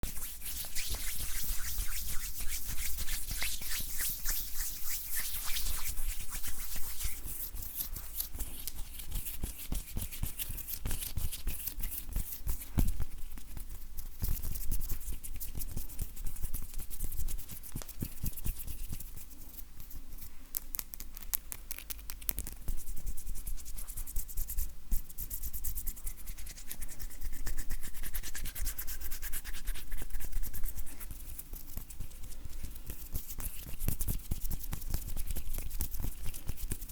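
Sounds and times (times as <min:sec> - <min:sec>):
dry hands rubbing together: 0:00.0 - 0:20.3.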